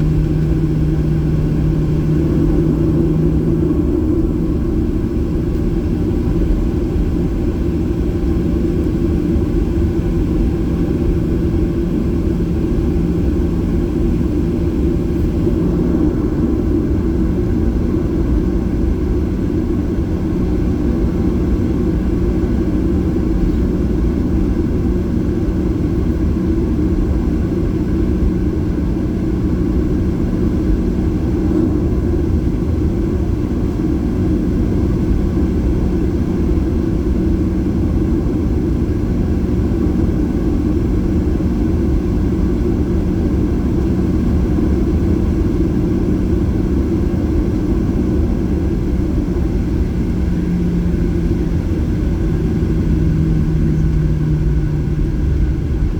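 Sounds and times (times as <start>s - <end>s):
jet engines rumbling in cabin: 0.0s - 55.9s.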